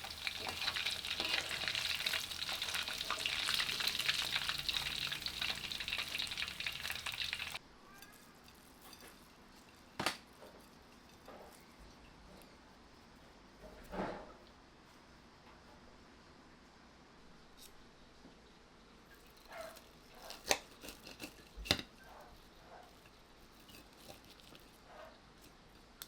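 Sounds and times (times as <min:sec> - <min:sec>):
chicken deep-frying in oil: 0:00.0 - 0:07.6.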